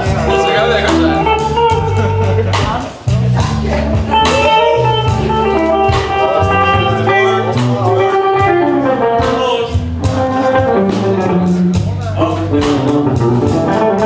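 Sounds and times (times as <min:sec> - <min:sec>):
blues band playing: 0:00.0 - 0:14.0
lead guitar bending notes: 0:00.0 - 0:14.0.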